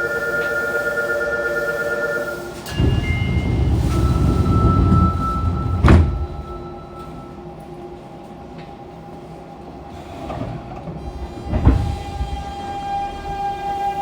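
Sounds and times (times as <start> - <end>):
train standing hum: 0.0 - 14.0
loud clunk: 2.7 - 6.6.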